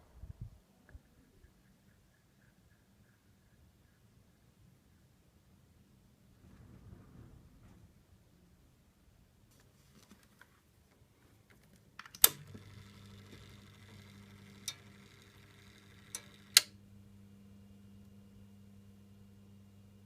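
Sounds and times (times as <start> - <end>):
switch clicking: 12.0 - 16.8
fan motor low hum: 12.2 - 20.0.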